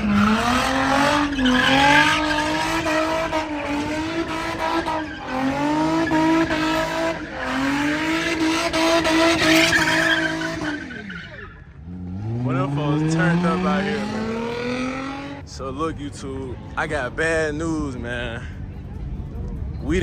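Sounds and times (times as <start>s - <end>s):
tyres squealing: 0.0s - 15.4s
car engine revving high: 0.0s - 17.4s.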